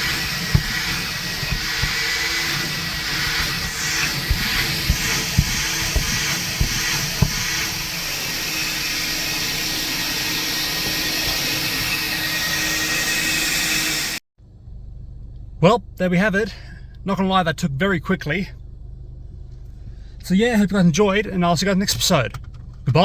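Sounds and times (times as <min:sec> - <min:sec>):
nozzle knocking: 0:00.0 - 0:09.5
car wash vacuum running: 0:00.0 - 0:14.2.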